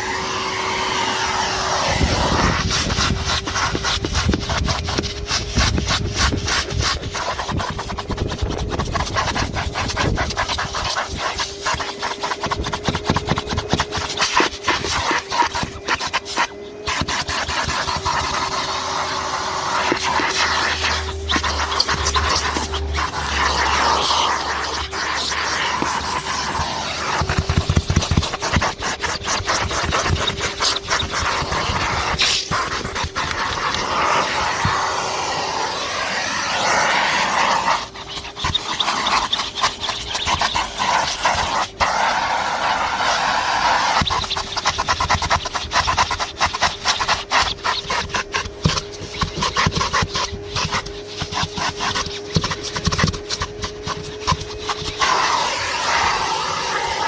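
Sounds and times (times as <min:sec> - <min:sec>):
vacuum cleaner motor whine: 0:00.0 - 0:44.8, 0:47.5 - 0:57.0
vacuum nozzle scraping: 0:00.0 - 0:57.0
grit clicking in vacuum: 0:19.8 - 0:35.0.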